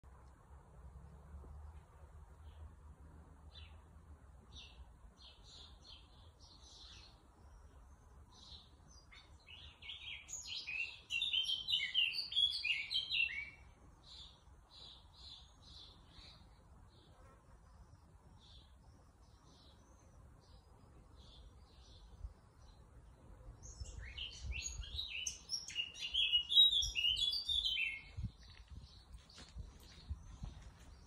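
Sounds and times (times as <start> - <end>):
small birds chirping: 3.4 - 31.0.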